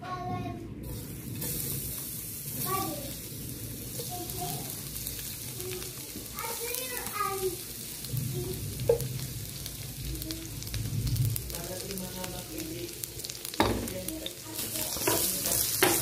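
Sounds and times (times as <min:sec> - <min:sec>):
garlic and onion sizzling in oil: 0:00.8 - 0:16.0.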